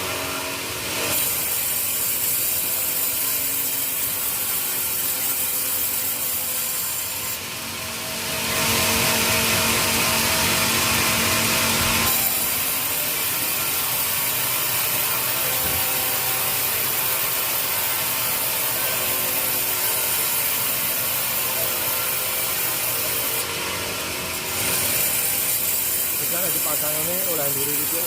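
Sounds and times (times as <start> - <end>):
saw cutting through wood: 0.0 - 28.0.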